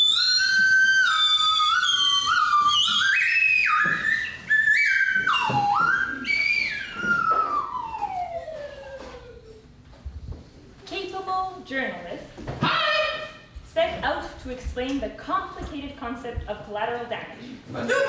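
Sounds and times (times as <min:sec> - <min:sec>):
high whistle playing notes: 0:00.0 - 0:09.6.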